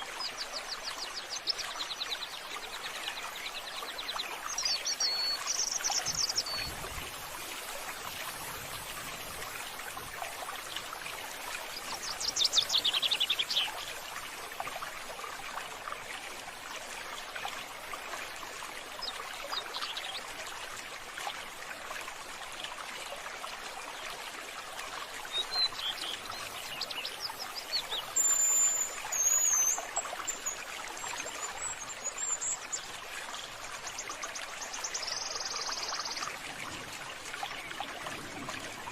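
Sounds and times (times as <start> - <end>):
running water hiss: 0.0 - 22.2, 23.6 - 38.9.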